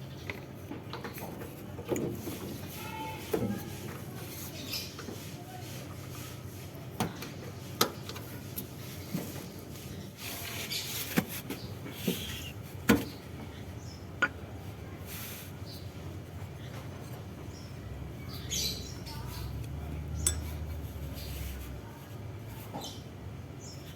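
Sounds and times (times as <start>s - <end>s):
light rubbing and scraping: 0.4s - 13.2s, 14.5s - 23.0s
metal tools clicking and knocking: 20.2s - 20.8s.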